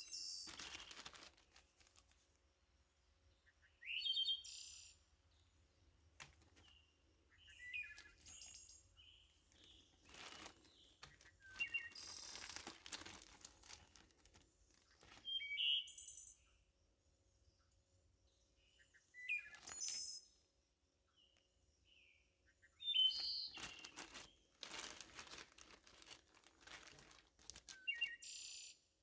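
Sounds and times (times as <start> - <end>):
plastic bags crinkling: 0.0 - 2.3, 6.2 - 6.7, 7.8 - 8.8, 9.4 - 15.5, 23.0 - 28.2
small bird chirping: 0.0 - 2.4, 3.3 - 16.7, 17.4 - 20.5, 21.1 - 28.9.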